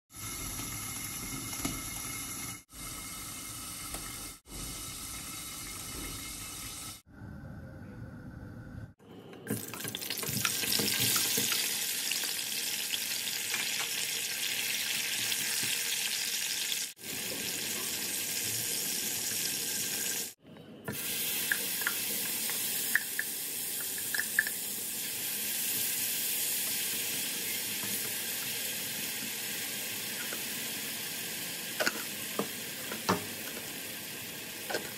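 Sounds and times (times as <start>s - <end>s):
vegetables sizzling in hot oil: 10.0s - 20.4s.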